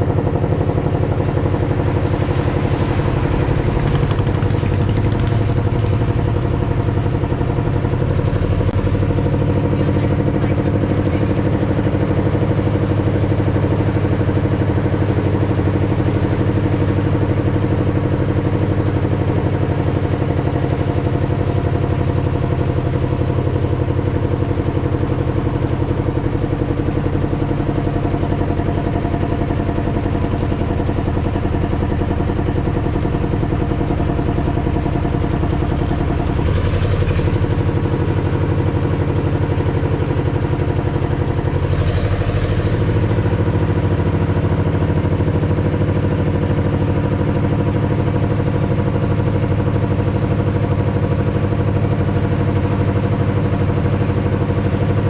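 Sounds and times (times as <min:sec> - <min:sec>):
small boat engine running: 0:00.0 - 0:55.0
brief rushes of noise: 0:01.5 - 0:06.6.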